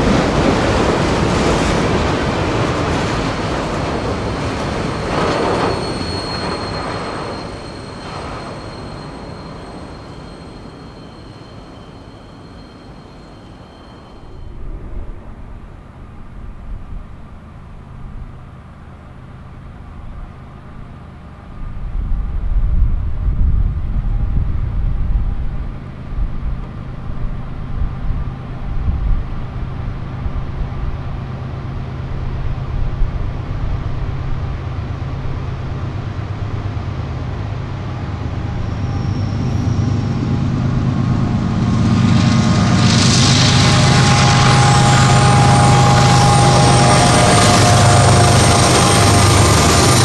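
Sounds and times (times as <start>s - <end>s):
diesel locomotive engine drone: 0.0s - 50.0s.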